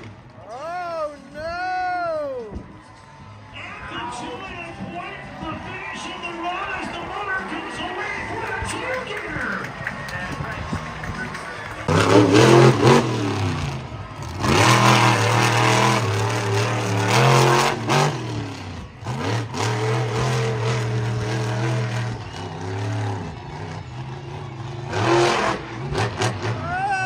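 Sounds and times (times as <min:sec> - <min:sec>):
truck engine revving hard: 0:10.2 - 0:27.0.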